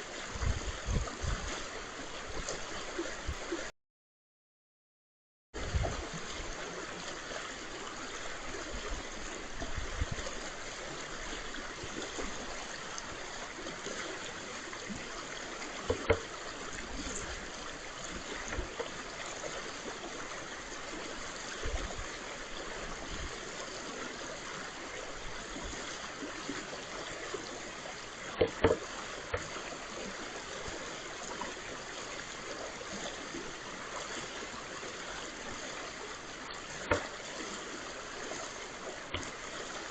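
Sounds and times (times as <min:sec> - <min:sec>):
brook water running: 0:00.0 - 0:03.7, 0:05.6 - 0:39.9
sharp knocks: 0:28.4 - 0:28.8.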